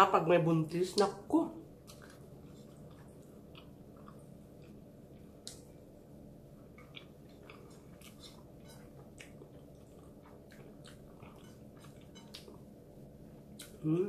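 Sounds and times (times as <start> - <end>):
faint low hum: 0.0 - 14.0
person chewing: 1.8 - 5.8, 6.6 - 12.8, 13.4 - 13.8
wet mouth clicks and smacks: 5.4 - 5.7.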